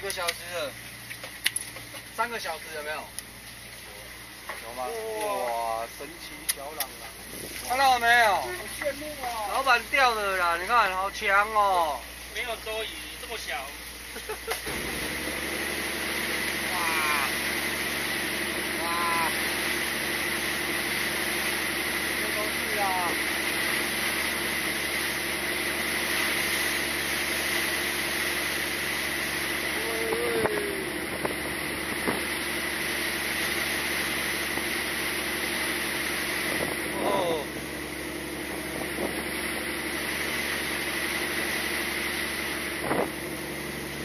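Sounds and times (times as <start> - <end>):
boat engine running: 0.0 - 44.0
short voice-like call: 16.7 - 17.4, 18.8 - 19.4, 29.8 - 31.0.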